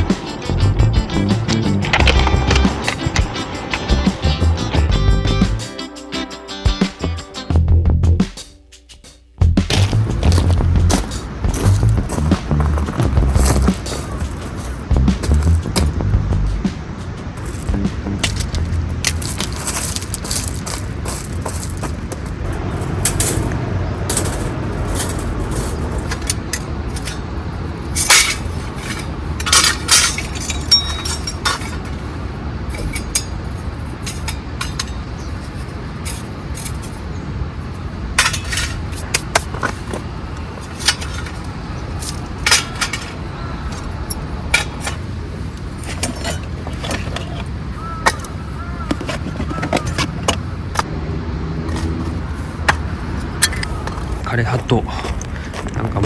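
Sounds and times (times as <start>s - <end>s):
camping gear clinking and knocking: 0.0s - 4.6s, 9.7s - 50.9s, 51.6s - 56.0s
low background rumble: 9.4s - 16.7s, 17.3s - 20.6s.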